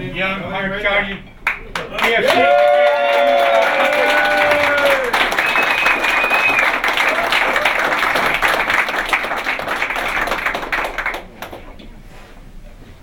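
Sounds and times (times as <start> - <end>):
crowd applauding: 1.4 - 11.8.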